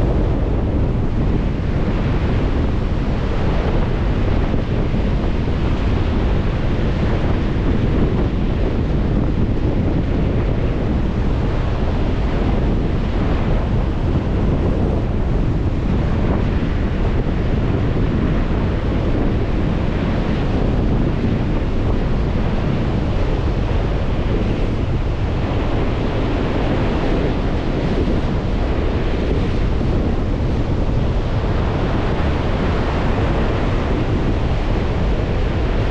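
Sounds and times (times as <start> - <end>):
wind buffeting microphone: 0.0 - 35.9
lake waves washing onto shore: 8.4 - 35.9.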